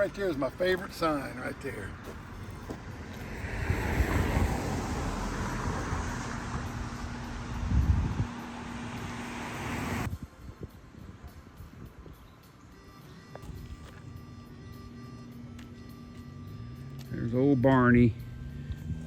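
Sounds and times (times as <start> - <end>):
car road and wind noise: 0.0 - 12.8, 13.4 - 19.0
wind buffeting microphone: 3.3 - 9.2.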